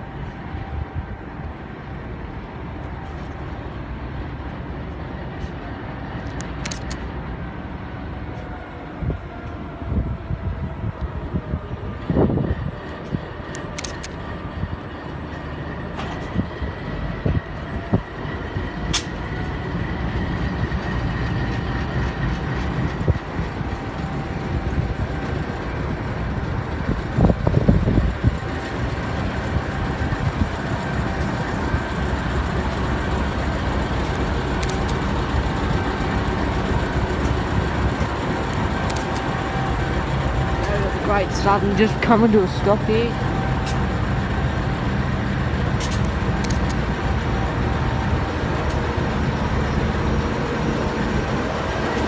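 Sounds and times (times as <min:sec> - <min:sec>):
train wheels rumbling: 0:00.0 - 0:52.0
sharp clicks: 0:34.0 - 0:35.1, 0:38.0 - 0:39.3.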